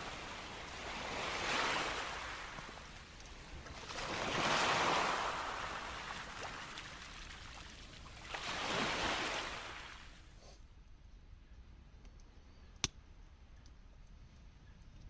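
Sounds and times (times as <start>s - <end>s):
sea waves breaking on shore: 0.0s - 10.3s.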